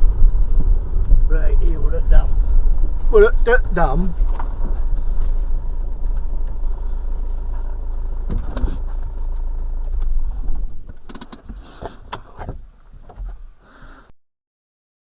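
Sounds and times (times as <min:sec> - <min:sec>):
van engine and road rumble: 0:00.0 - 0:14.1
clicks and knocks: 0:09.9 - 0:13.4.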